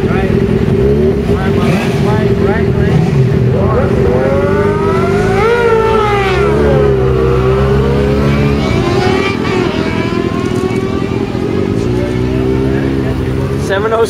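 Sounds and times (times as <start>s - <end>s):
motorcycle engine revving high: 0.0s - 14.0s
motorcycle engines idling: 0.0s - 14.0s.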